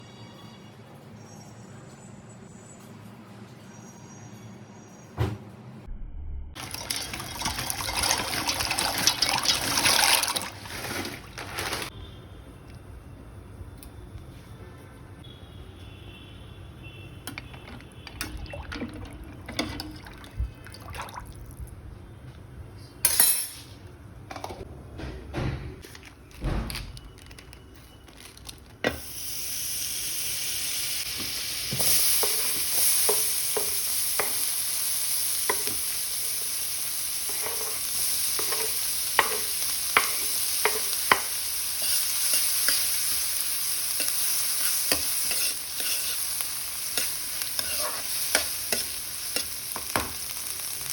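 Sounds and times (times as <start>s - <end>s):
food sizzling in hot oil: 6.6s - 11.0s, 28.9s - 50.9s
utensils clinking: 17.3s - 21.2s, 37.3s - 43.1s, 44.0s - 50.2s
spoon scraping a pan: 37.2s - 43.2s, 43.9s - 50.3s.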